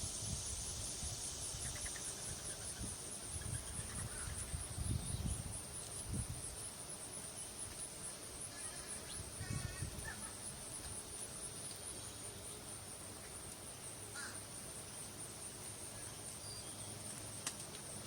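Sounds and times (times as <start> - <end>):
wind rumble on microphone: 0.0 - 6.6, 9.2 - 10.2
insect trilling: 0.1 - 5.6, 8.4 - 10.8.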